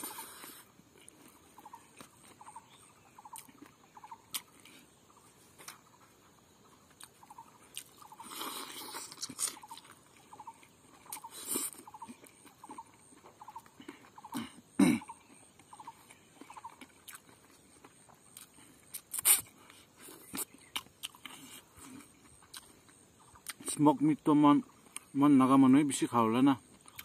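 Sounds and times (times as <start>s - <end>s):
man chewing food: 0.0s - 23.8s, 24.7s - 25.2s, 26.6s - 27.0s
faint repeating chirp: 6.6s - 8.4s, 9.6s - 17.0s.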